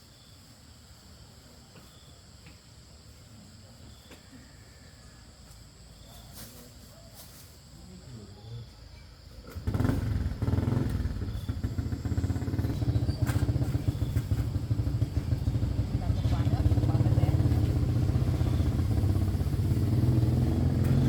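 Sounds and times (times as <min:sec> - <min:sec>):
small engine running: 0:09.4 - 0:21.0.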